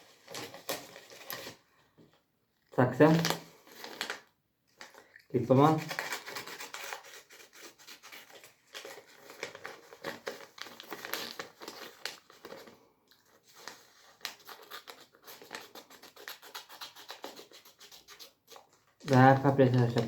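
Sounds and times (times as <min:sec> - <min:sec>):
paper rustling: 0:00.0 - 0:02.2, 0:03.0 - 0:20.0
scissors cutting paper: 0:05.6 - 0:12.7, 0:13.6 - 0:20.0.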